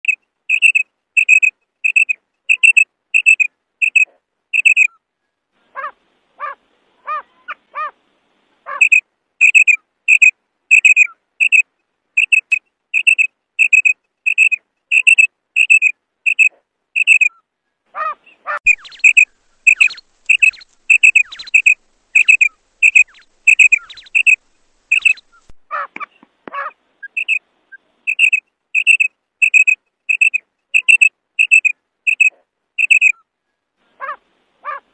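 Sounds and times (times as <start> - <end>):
lower-pitched quail calls: 0.0 - 5.0, 5.7 - 8.0, 8.6 - 11.6, 12.2 - 27.4, 28.1 - 33.2, 34.0 - 34.8
quail calling high notes: 0.5 - 5.0, 8.7 - 11.6, 18.0 - 25.9.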